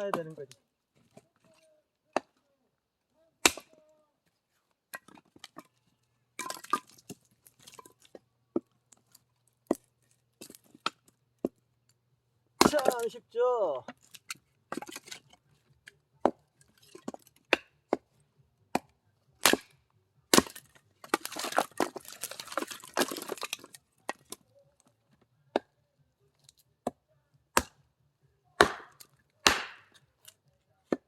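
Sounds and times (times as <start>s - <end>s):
axe splitting firewood: 0.0s - 2.4s, 3.4s - 3.9s, 4.7s - 11.8s, 12.4s - 28.0s, 28.6s - 31.0s
wood clattering: 4.9s - 11.6s, 13.8s - 19.7s, 20.3s - 24.4s.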